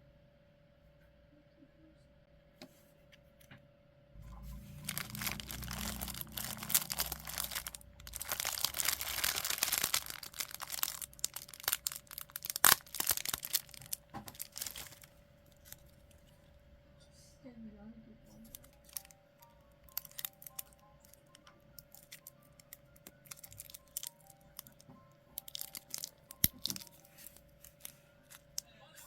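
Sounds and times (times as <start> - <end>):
packaging crinkling and tearing: 4.3 - 16.3, 18.4 - 19.1, 19.9 - 24.8, 25.4 - 28.6.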